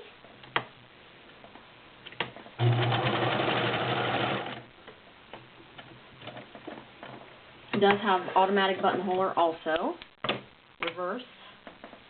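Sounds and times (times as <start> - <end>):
sewing machine stitching: 2.6 - 4.7.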